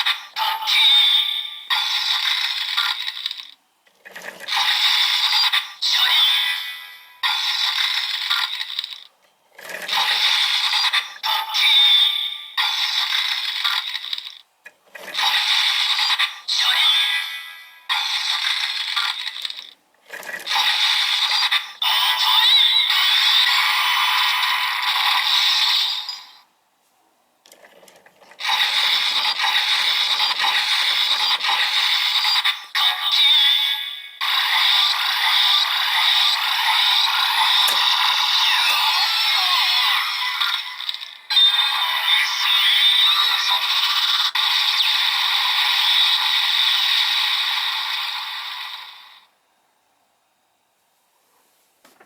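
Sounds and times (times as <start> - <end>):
tinny electronic toy sound effects: 0.0 - 14.4, 15.0 - 26.5, 28.2 - 49.3
plastic toy clicks: 7.3 - 11.2, 34.6 - 38.3.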